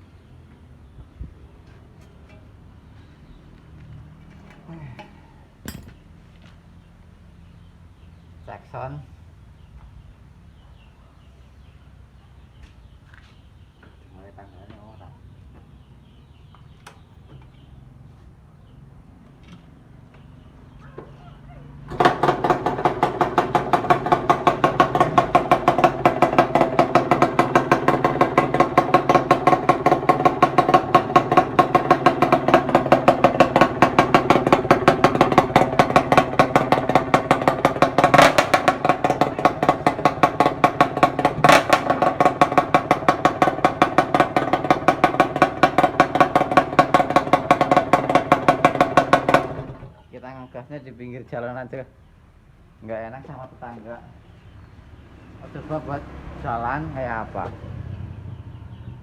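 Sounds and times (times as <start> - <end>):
two-stroke engine idling: 0.0 - 8.7, 19.9 - 50.6.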